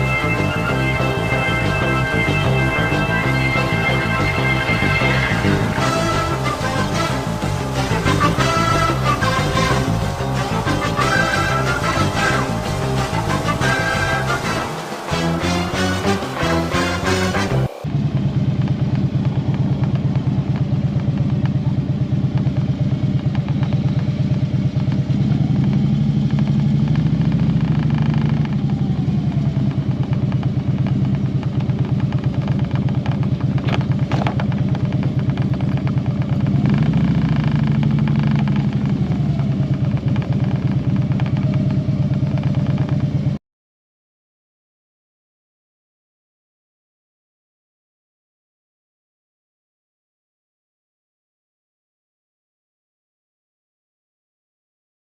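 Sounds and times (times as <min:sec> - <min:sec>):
motorcycle engine running: 0:00.0 - 0:43.4.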